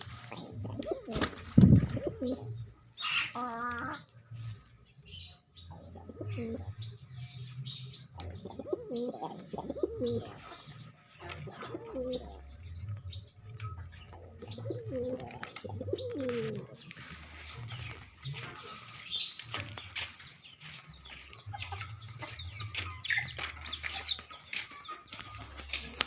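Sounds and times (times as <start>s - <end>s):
pigeons cooing: 0.0s - 4.8s, 5.6s - 26.0s
wings flapping: 0.1s - 2.2s.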